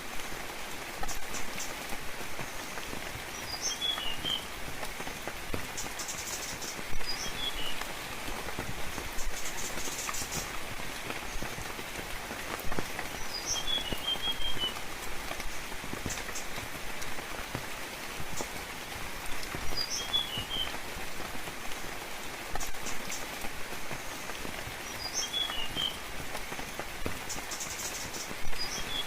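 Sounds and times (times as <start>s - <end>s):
rain pattering and dripping: 0.0s - 29.0s
songbird chirping: 1.0s - 11.7s, 12.4s - 16.8s, 18.2s - 20.8s, 24.0s - 26.1s, 27.2s - 29.0s.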